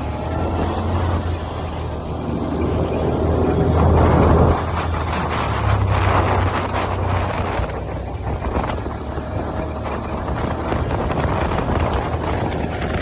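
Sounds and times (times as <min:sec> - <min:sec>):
vehicle engine running: 0:00.0 - 0:13.0
wind buffeting microphone: 0:00.0 - 0:13.0.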